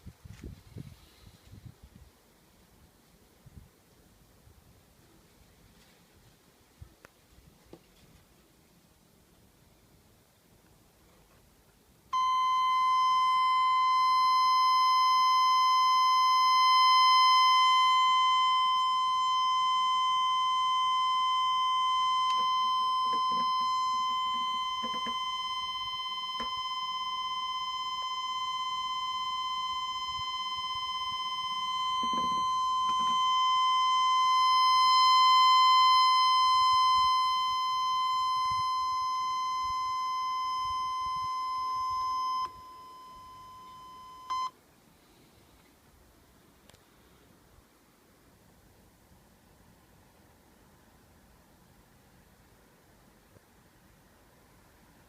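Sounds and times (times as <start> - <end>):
high-pitched tester beep: 12.2 - 44.6.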